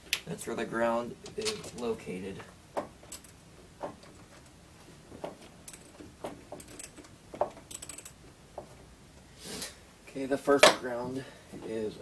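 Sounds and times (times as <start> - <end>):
metallic clicks of wrench and bolt: 7.7 - 8.2.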